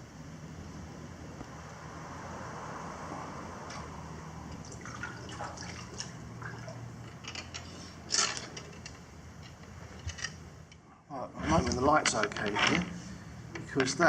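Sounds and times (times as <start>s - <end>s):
water splashing and dripping: 4.6s - 6.9s.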